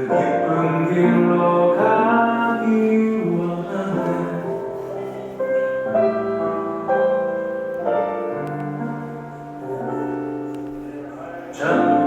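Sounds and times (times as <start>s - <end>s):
person singing: 0.0s - 6.3s, 9.6s - 12.0s
piano chords: 0.0s - 12.0s.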